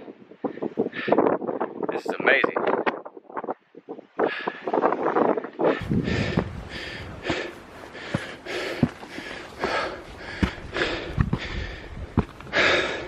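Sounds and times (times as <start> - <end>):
person breathing hard: 0.4 - 1.6, 4.2 - 13.0.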